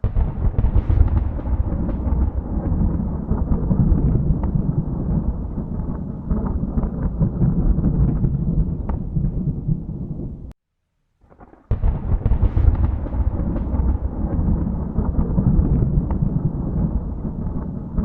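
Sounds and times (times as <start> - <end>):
thunder rumbling: 0.0 - 10.5, 11.3 - 18.0
thunderclap cracking: 0.0 - 10.5, 11.2 - 18.0.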